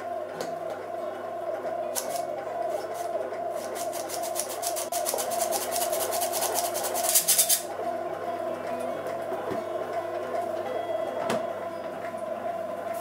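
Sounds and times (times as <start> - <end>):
steady hum: 0.0 - 13.0
scraping strokes of mixing in bowl: 2.8 - 7.7.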